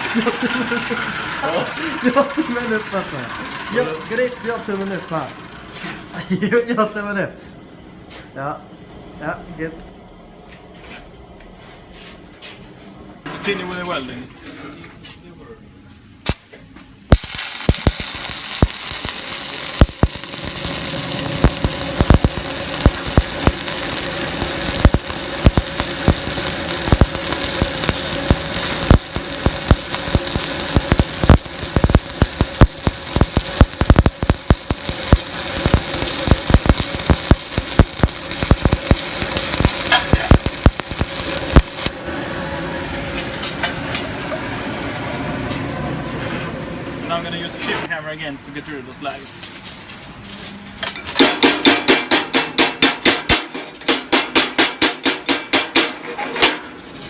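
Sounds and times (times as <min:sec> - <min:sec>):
welding arc crackling and popping: 0:00.0 - 0:02.8, 0:16.2 - 0:42.0
steady hum: 0:15.2 - 0:47.9.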